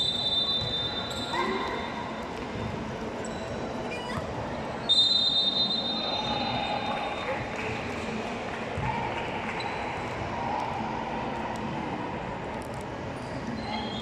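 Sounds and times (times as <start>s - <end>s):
referee's whistle blasts: 0.0s - 1.4s, 4.8s - 6.6s.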